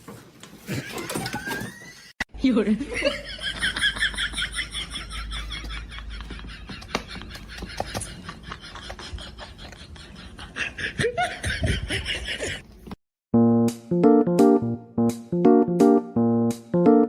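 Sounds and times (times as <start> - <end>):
people laughing: 2.7 - 12.6.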